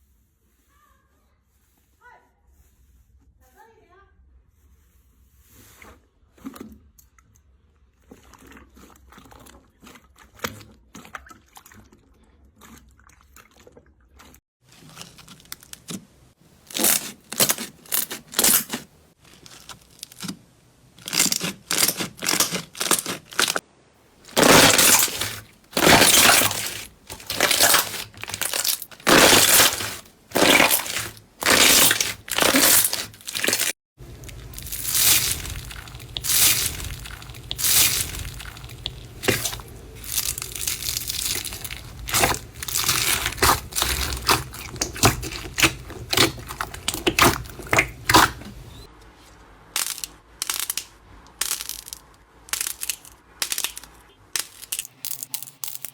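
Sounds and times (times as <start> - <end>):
crunchy slime being squeezed: 16.6 - 20.4, 21.0 - 23.6, 24.3 - 48.9, 52.5 - 54.9.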